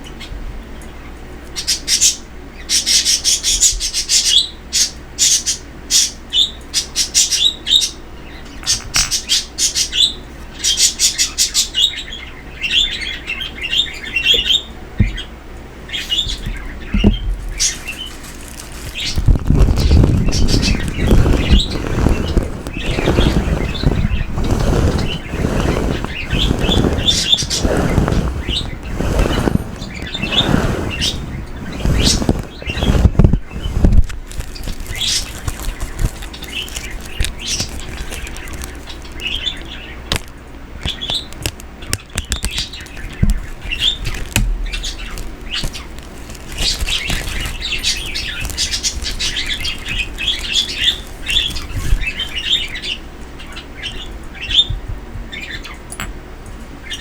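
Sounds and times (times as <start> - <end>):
pet birds chirping: 1.5 - 56.1
loud swishing rustle: 17.4 - 39.2.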